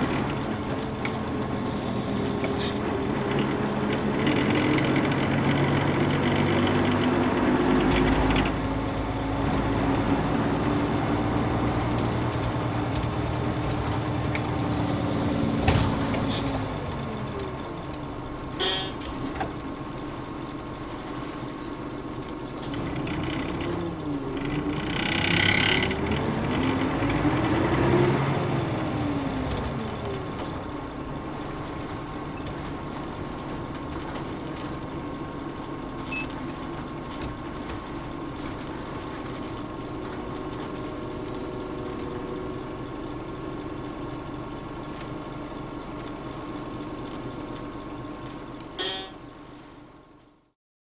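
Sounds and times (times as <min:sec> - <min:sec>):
bus diesel engine: 0:00.0 - 0:50.6
air brake hisses: 0:01.3 - 0:02.8, 0:14.5 - 0:16.6.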